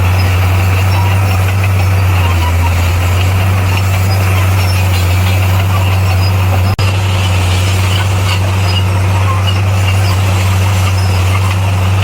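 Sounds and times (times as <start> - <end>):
bulldozer diesel engine droning: 0.0 - 12.0.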